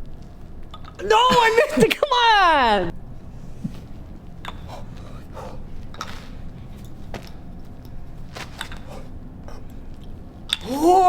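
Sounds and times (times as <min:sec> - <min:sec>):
steady low rumble: 0:02.9 - 0:10.5.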